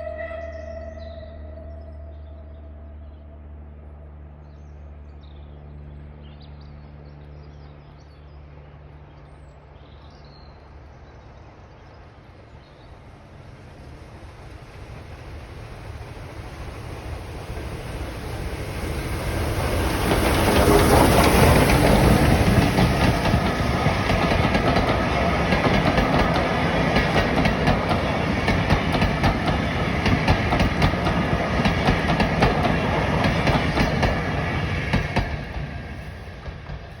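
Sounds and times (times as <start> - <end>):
steam locomotive passing: 0.0 - 5.0, 10.6 - 37.0
wheels clacking over rail joints: 18.4 - 37.0.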